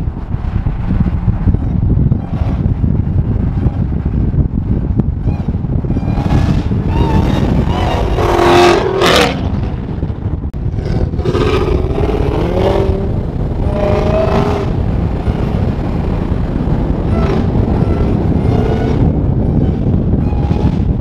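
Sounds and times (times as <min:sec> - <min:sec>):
car engine accelerating hard: 0:10.7 - 0:19.1.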